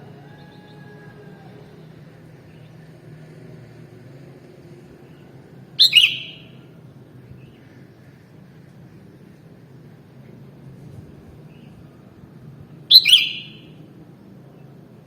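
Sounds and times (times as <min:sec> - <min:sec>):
bird call: 0:05.8 - 0:06.7, 0:12.9 - 0:13.8.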